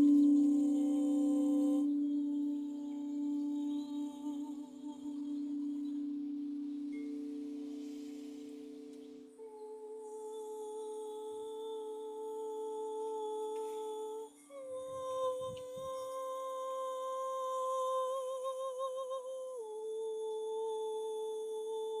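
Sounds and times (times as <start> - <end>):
person humming long notes: 0.0 - 22.0.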